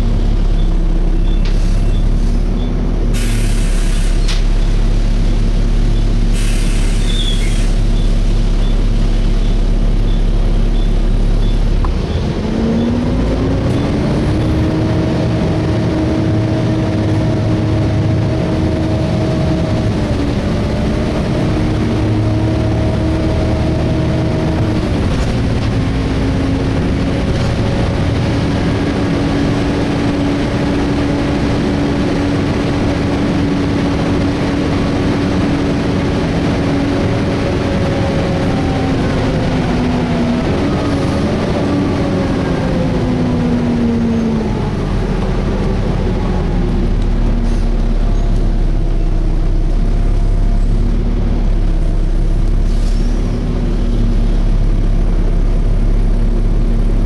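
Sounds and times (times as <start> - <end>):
bus diesel engine: 0.0 - 57.0.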